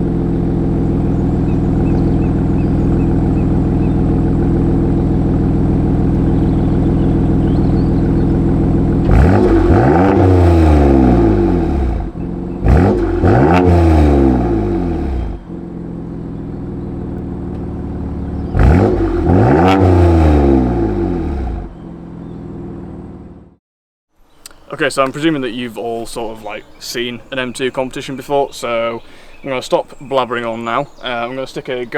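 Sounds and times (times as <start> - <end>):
car engine idling and revving: 0.0 - 23.6.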